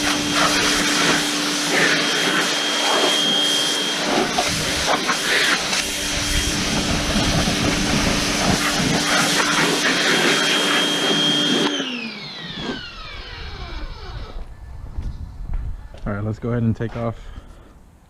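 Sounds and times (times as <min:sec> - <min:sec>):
pressure washer water jet hissing: 0:00.0 - 0:11.8
motor winding down whine: 0:00.0 - 0:14.7.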